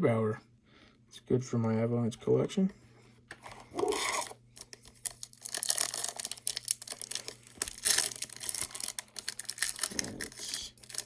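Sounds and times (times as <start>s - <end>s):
foil wrapper tearing and crinkling: 3.8s - 11.0s.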